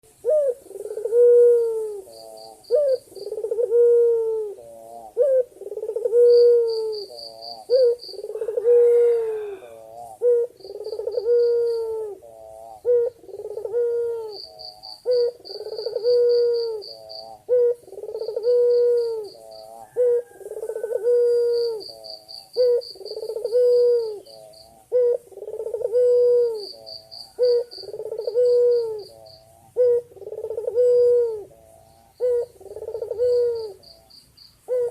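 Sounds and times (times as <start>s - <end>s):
dove cooing: 0.0s - 34.9s.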